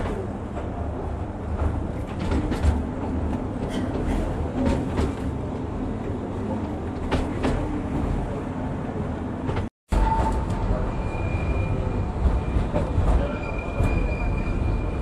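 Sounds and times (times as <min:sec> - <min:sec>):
train rumble: 0:00.0 - 0:15.0
high wheel squeal: 0:10.0 - 0:15.0.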